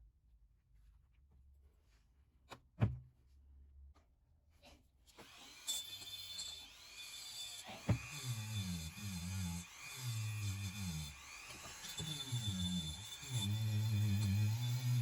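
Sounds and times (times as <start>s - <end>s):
power tool rasping and whining: 5.1s - 15.0s.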